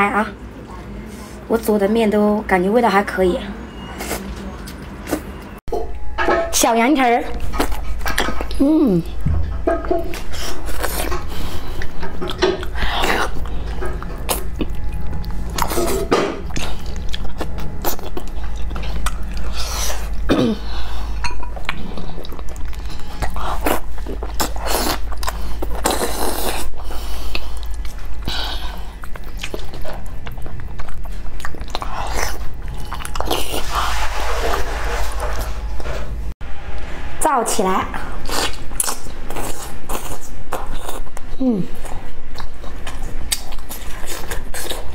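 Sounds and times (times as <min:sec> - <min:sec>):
steady low hum: 0:04.8 - 0:44.9
wet chewing and biting: 0:21.6 - 0:33.7, 0:38.2 - 0:44.9.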